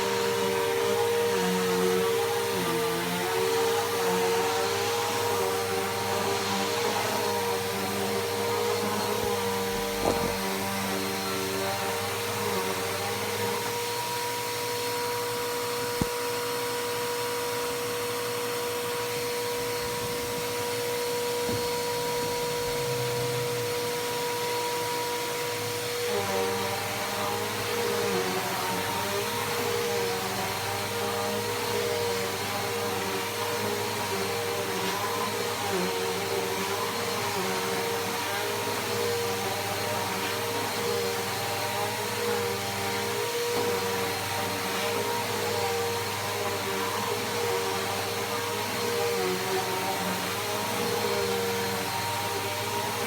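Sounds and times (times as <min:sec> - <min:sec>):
vacuum cleaner motor whine: 0:00.0 - 0:53.0.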